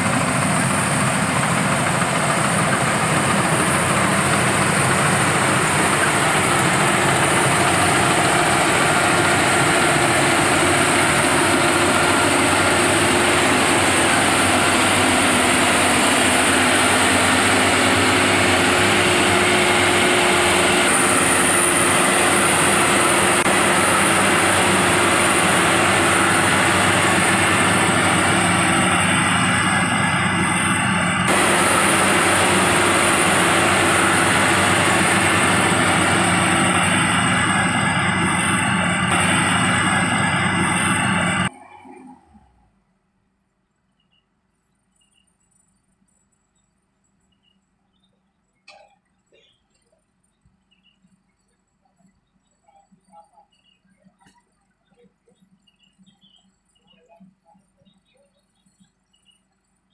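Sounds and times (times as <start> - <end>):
harvesting machine engine droning: 0.0 - 42.7.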